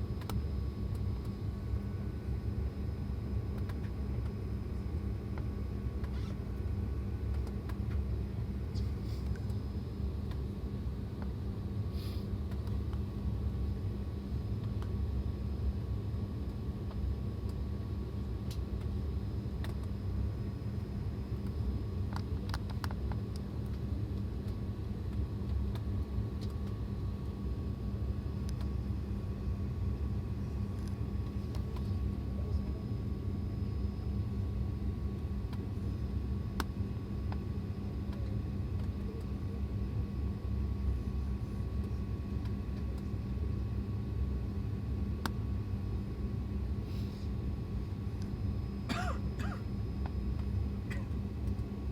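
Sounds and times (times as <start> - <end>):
airliner cabin rumble and hum: 0.0 - 51.9.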